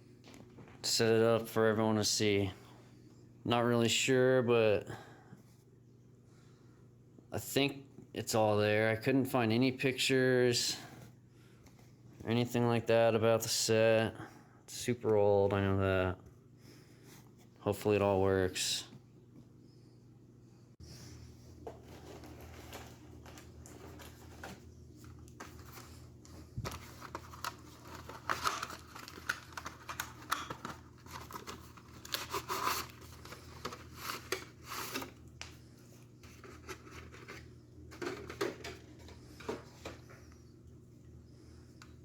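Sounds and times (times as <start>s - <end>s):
faint steady hum: 0.0s - 42.0s
cardboard packaging rustling: 21.5s - 40.1s.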